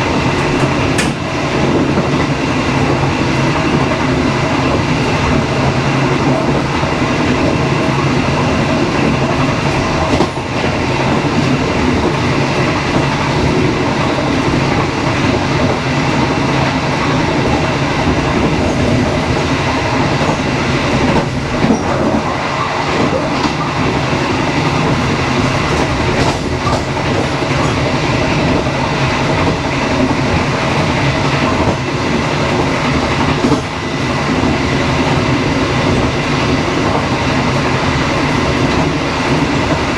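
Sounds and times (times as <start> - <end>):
wheels clicking over rails: 0.0 - 2.4, 24.6 - 30.5
train rumbling along track: 0.0 - 39.9.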